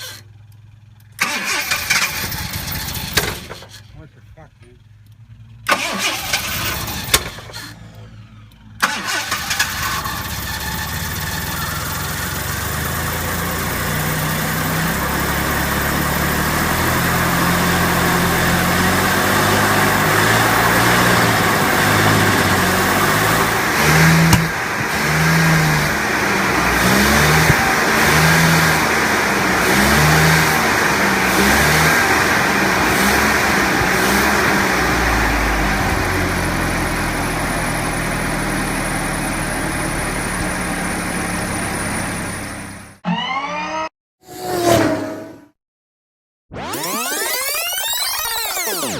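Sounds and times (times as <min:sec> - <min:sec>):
car starter cranking: 0:00.0 - 0:04.2, 0:04.8 - 0:13.0, 0:19.5 - 0:30.4
car engine running and revving: 0:00.0 - 0:45.5.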